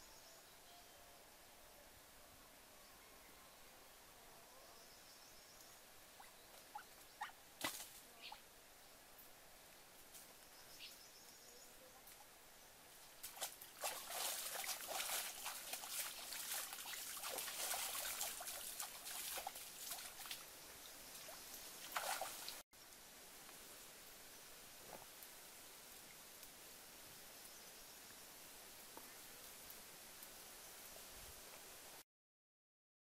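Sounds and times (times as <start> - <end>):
splashing in shallow water: 13.2 - 20.5, 21.1 - 22.6.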